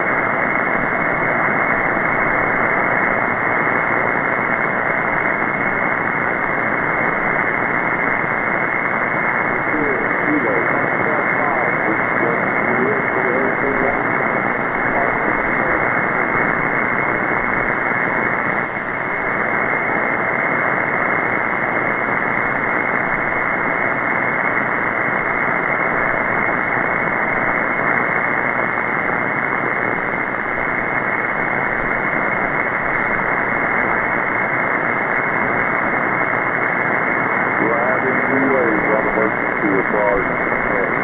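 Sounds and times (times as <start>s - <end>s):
radio static hiss: 0.0s - 41.0s.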